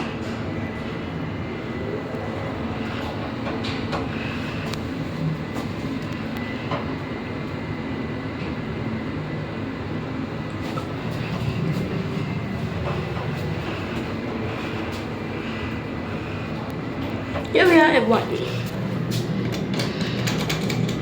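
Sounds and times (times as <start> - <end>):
lift car rumbling: 0.0 - 21.0
faint clicks and rattles: 18.6 - 21.0.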